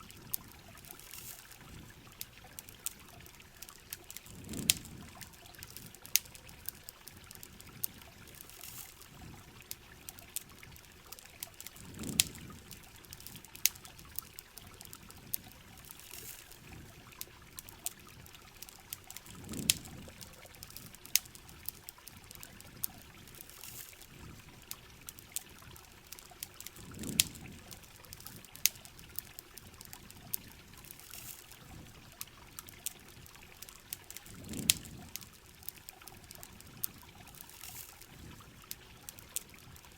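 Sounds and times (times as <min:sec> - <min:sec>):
campfire crackling: 0:00.0 - 0:39.9
steady rain patter: 0:00.0 - 0:39.9
trickling pouring water: 0:00.0 - 0:39.9.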